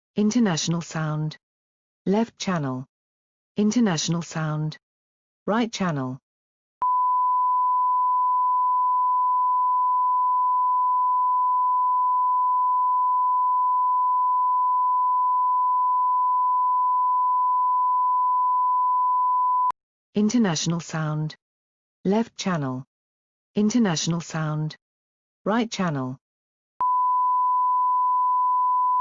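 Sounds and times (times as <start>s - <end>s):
steady sine tone: 6.8s - 19.7s, 26.8s - 29.0s.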